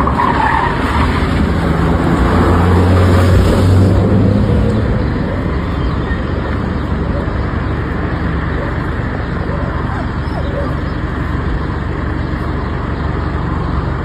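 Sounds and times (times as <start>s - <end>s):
road noise: 0.0s - 14.0s
vehicle engine humming: 0.0s - 14.0s.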